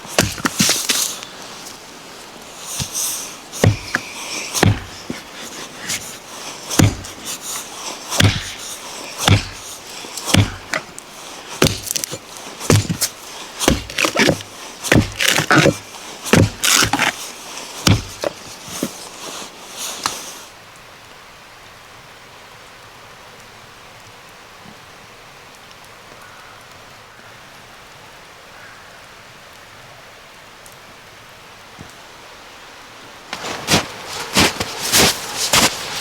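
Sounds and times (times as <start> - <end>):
axe chopping wood: 0.1 - 1.3, 2.8 - 3.0, 3.6 - 19.0.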